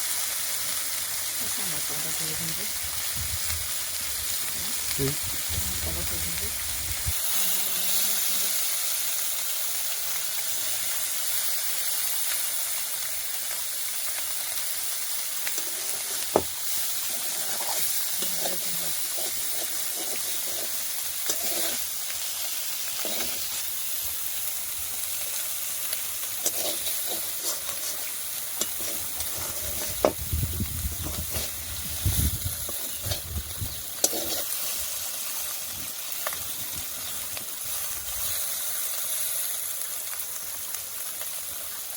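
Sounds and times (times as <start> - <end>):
fish sizzling in hot oil: 0.0 - 41.9
utensil scraping a pan: 15.4 - 22.1, 22.8 - 23.7, 26.3 - 30.2, 30.9 - 35.0.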